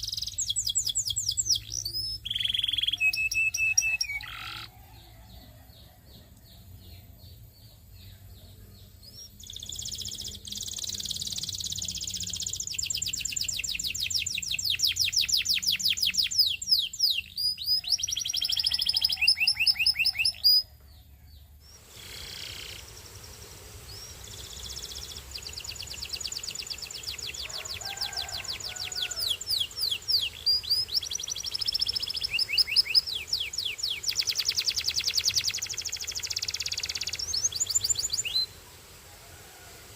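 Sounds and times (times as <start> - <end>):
canary singing trills: 0.0 - 38.6
faint low hum: 4.0 - 15.0.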